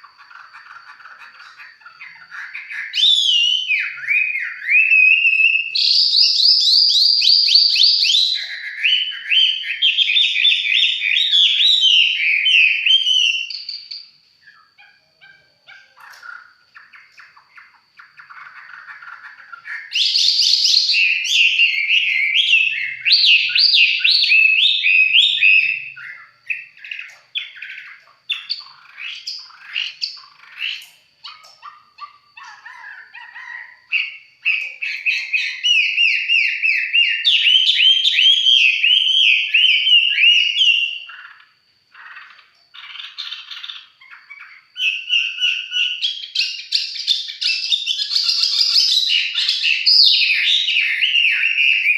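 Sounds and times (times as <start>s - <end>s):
songbird singing trilled phrases: 0.0s - 51.9s.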